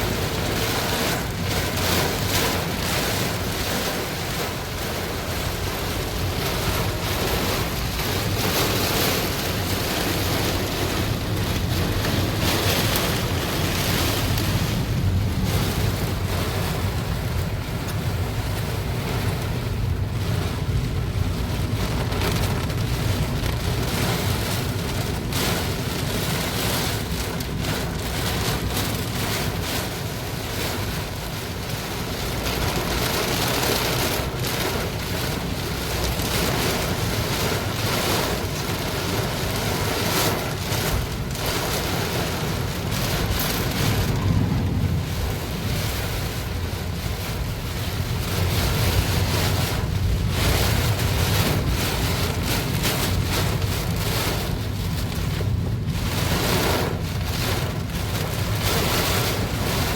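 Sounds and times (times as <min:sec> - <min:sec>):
heavy rain pouring: 0:00.0 - 0:59.9
wind buffeting microphone: 0:39.0 - 0:59.9.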